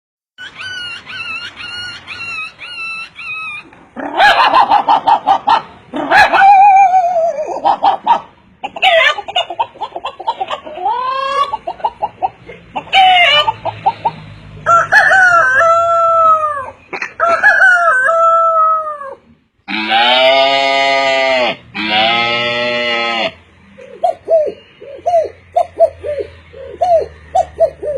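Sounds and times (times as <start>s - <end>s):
person imitating hen clucks: 2.8s - 14.2s
person imitating rooster crowing: 14.7s - 23.4s.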